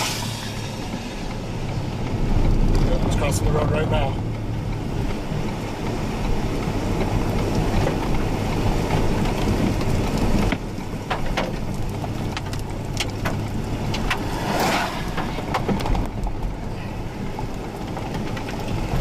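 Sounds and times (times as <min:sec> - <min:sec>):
car interior rumble and hiss: 0:00.0 - 0:19.0
rain on a car: 0:00.0 - 0:19.0
drops tapping on a car: 0:04.2 - 0:14.3, 0:15.1 - 0:16.7.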